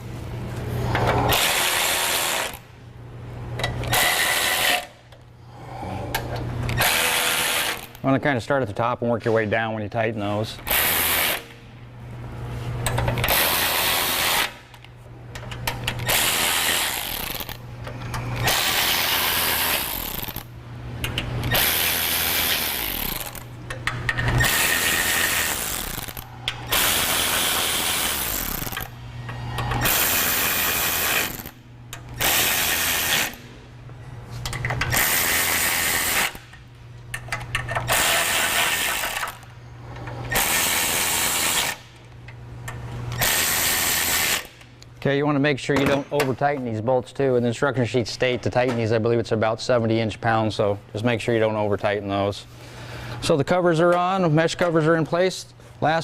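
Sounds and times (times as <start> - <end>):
cordless power tool tightening bolts: 21.1 - 23.4, 37.1 - 39.4, 43.1 - 44.6.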